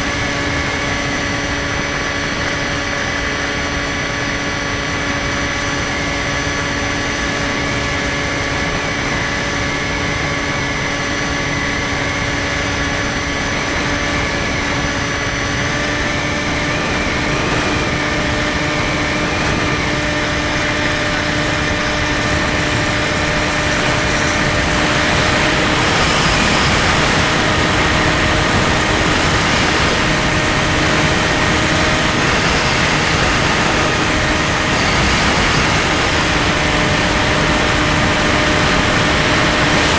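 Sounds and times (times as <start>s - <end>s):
electric motor and propeller hum: 0.0s - 39.9s
rushing wind noise: 0.0s - 39.9s.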